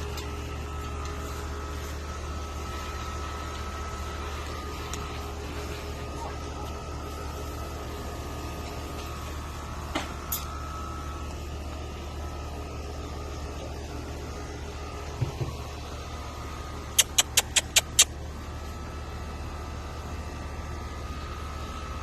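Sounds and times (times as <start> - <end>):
short clicks: 17.0 - 18.1.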